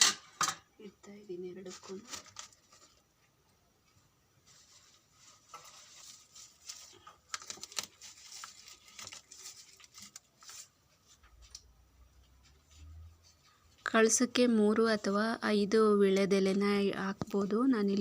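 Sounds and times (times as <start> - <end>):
faint rustling of leaves: 1.2 - 14.0.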